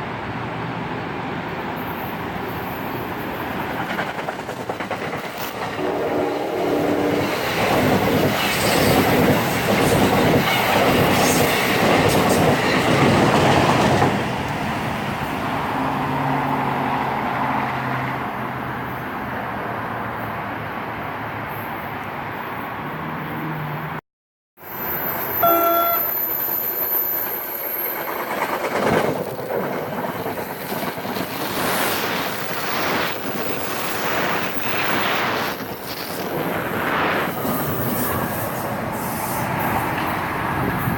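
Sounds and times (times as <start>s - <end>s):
train rumbling past: 0.0s - 23.9s, 24.6s - 40.9s.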